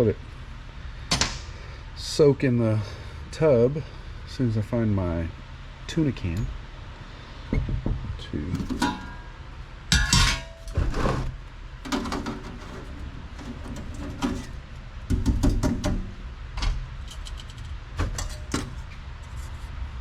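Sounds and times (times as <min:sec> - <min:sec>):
low steady hum: 0:00.0 - 0:20.0
metal tools clinking and clattering: 0:08.6 - 0:09.3, 0:09.9 - 0:10.8
ringing metallic clank: 0:08.6 - 0:10.7.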